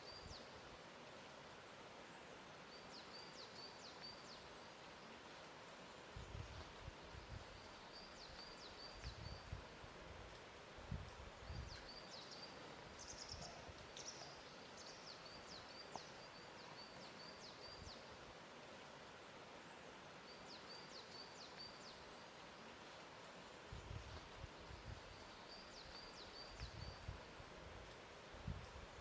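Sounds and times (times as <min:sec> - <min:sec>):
small birds chirping: 0:05.8 - 0:09.6, 0:11.0 - 0:18.2, 0:19.7 - 0:27.1.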